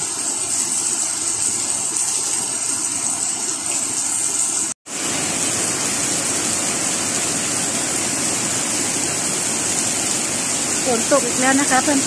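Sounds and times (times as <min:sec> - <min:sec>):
heavy rain falling: 0:04.2 - 0:12.0.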